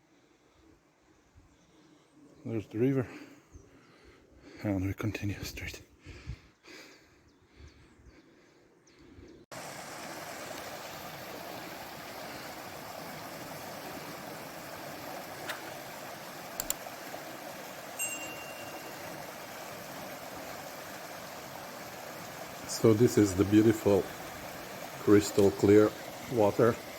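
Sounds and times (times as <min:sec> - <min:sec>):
stream rushing over rocks: 0:09.5 - 0:26.9.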